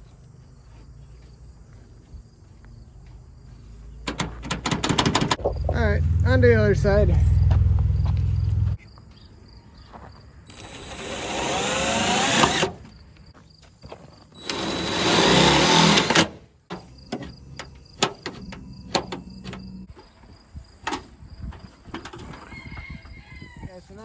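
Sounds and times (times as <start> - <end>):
cordless drill driving screws: 10.5 - 12.8, 14.4 - 16.4.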